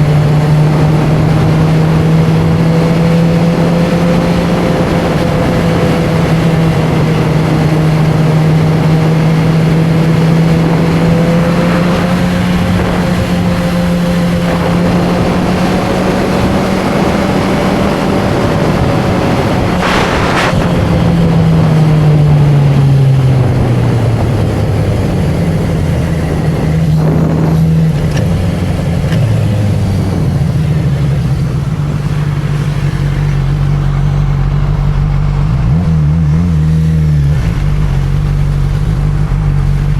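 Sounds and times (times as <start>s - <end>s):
motorcycle engine and exhaust: 0.0s - 39.9s
brief rushing noise: 19.8s - 21.1s.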